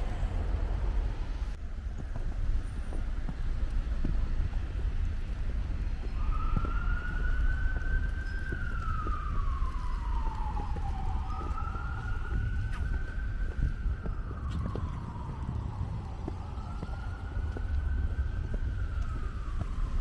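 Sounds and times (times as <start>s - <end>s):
low rumble: 0.0s - 20.0s
emergency vehicle siren wailing: 5.8s - 20.0s.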